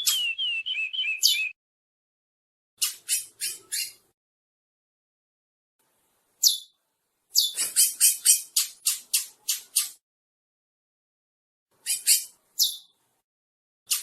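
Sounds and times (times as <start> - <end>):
finch singing: 0.0 - 1.6, 2.8 - 4.0, 6.4 - 6.8, 11.8 - 13.0.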